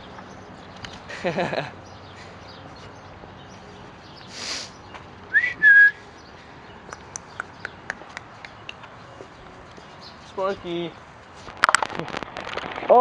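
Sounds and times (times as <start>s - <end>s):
short rising whistle: 5.3s - 6.0s
light sharp ticks: 6.9s - 9.0s.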